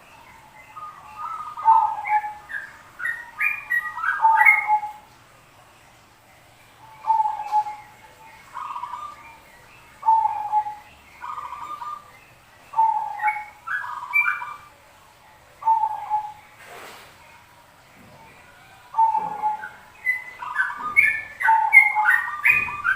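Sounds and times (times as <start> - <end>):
doves cooing: 0.0 - 5.1, 6.8 - 9.4, 10.0 - 12.1, 12.7 - 14.7, 15.6 - 16.6, 18.8 - 22.9.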